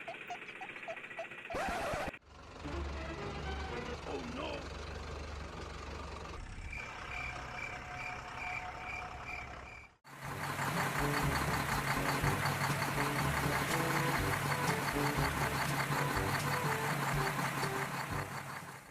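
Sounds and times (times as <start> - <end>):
low engine hum: 0.0 - 18.9
vehicle reversing beeper: 6.6 - 10.0
busy sound with low hum: 10.2 - 18.9.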